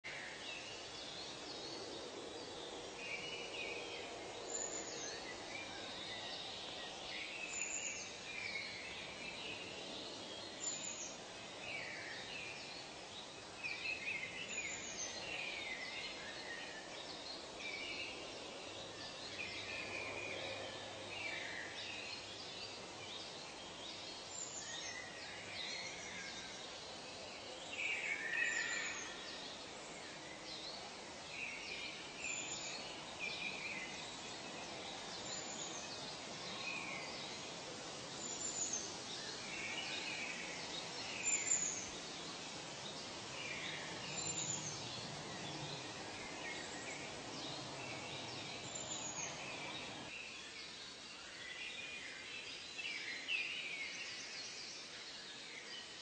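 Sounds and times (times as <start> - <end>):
outdoor background hiss: 0.0 - 56.0
birds chirping and whistling: 43.4 - 50.1.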